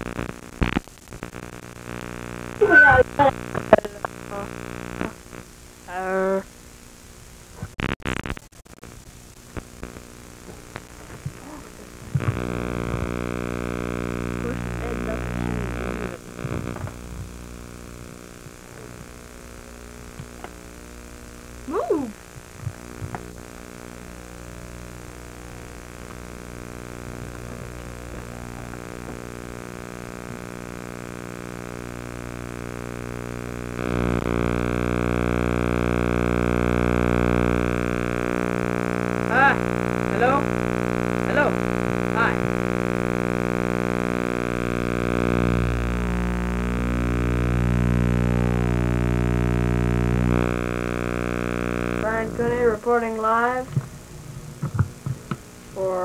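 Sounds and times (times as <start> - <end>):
crackling: 0.0 - 56.0
faint hum: 0.0 - 56.0
mechanical drone: 22.3 - 53.8.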